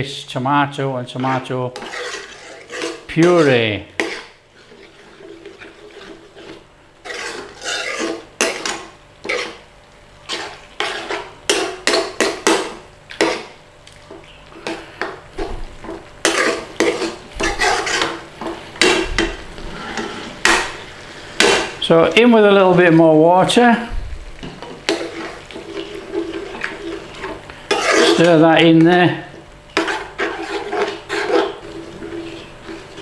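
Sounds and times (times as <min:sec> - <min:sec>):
utensil scraping a pan: 0:01.1 - 0:09.6, 0:10.2 - 0:13.6, 0:14.6 - 0:21.8, 0:24.6 - 0:28.5, 0:29.7 - 0:33.0
thick sauce being stirred: 0:01.2 - 0:09.6, 0:10.2 - 0:20.5, 0:24.6 - 0:29.0, 0:29.7 - 0:33.0.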